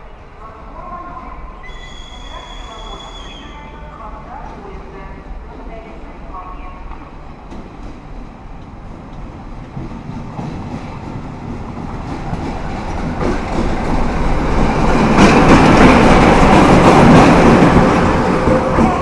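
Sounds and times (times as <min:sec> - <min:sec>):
train wheels clattering over rails: 0:07.4 - 0:19.0.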